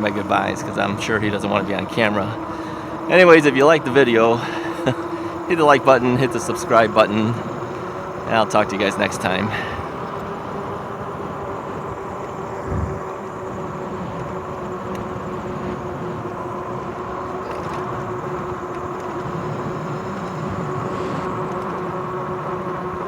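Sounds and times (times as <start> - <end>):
electric hub motor whining: 0.0 - 23.0
tyre and wind noise: 8.4 - 23.0.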